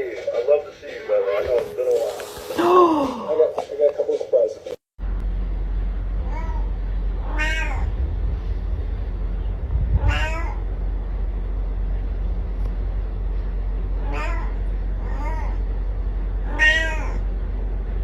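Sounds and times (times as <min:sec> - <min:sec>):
steady low hum: 0:00.0 - 0:18.0
cat meowing: 0:06.2 - 0:07.9, 0:10.0 - 0:10.7, 0:14.0 - 0:15.6, 0:16.4 - 0:17.3.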